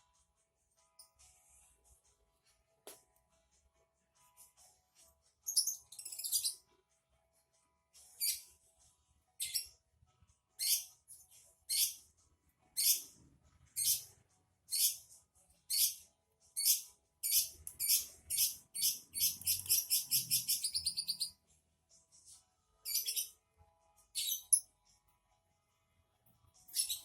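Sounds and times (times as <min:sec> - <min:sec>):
small songbird chirping: 0:11.7 - 0:12.0, 0:12.8 - 0:13.1, 0:15.7 - 0:16.0, 0:16.6 - 0:21.4.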